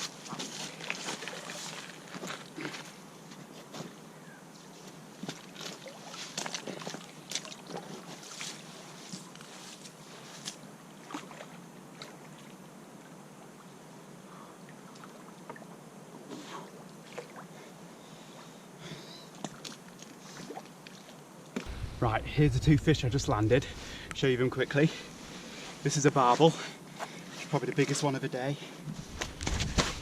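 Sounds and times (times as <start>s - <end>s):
wind: 0.0s - 30.0s
river flowing: 21.6s - 25.9s
water splashing: 21.7s - 25.8s.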